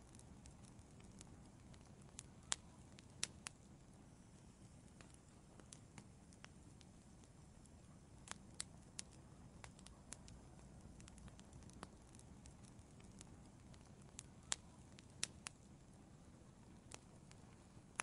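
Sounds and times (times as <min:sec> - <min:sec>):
fire popping and snapping: 0:00.0 - 0:18.0
wood fire crackling: 0:00.0 - 0:18.0.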